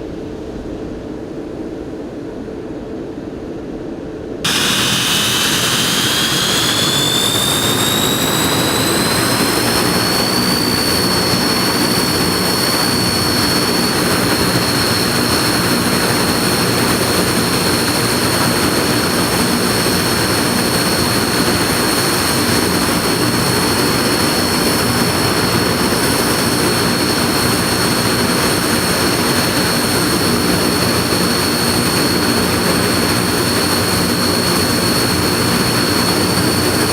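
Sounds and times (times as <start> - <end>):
turboprop engine rush: 4.4 - 36.9
turbine whine climbing: 4.5 - 36.9.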